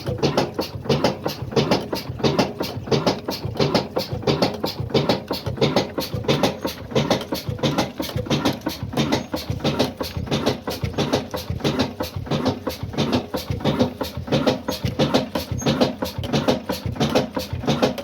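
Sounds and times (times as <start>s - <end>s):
diesel engine exhaust beating: 0.0s - 18.0s.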